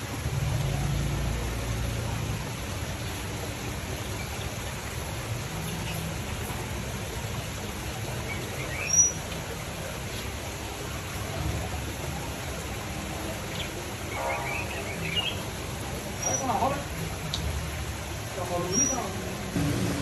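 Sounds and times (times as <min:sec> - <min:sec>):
steady background noise: 0:00.0 - 0:20.0
small birds chirping: 0:08.1 - 0:10.2, 0:13.2 - 0:16.9, 0:18.6 - 0:19.3.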